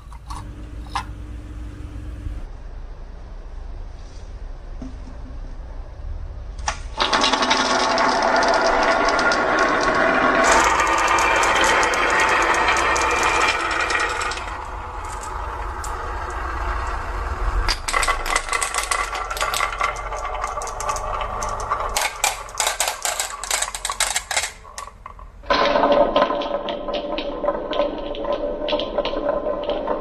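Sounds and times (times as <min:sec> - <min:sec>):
marbles clattering down wooden track: 0:07.0 - 0:17.0, 0:17.6 - 0:30.0.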